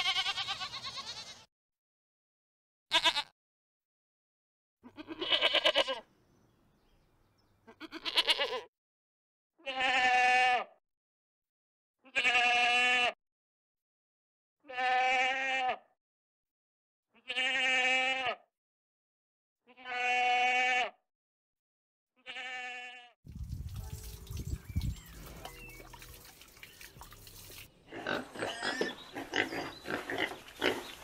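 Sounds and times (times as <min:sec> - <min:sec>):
goat bleating: 0:00.0 - 0:01.5, 0:02.9 - 0:03.3, 0:04.8 - 0:06.1, 0:07.6 - 0:08.7, 0:09.6 - 0:10.8, 0:12.0 - 0:13.2, 0:14.6 - 0:15.9, 0:17.2 - 0:18.4, 0:19.7 - 0:21.0, 0:22.2 - 0:23.2.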